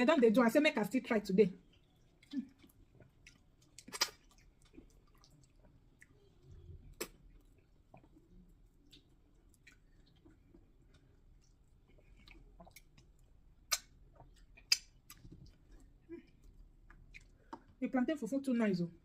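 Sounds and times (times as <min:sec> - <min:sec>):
mouth eating sounds: 0:02.0 - 0:17.7.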